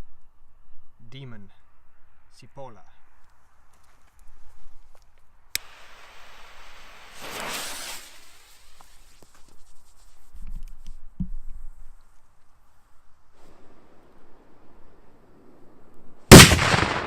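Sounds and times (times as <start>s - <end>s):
firecracker fuse hissing: 5.6s - 10.3s.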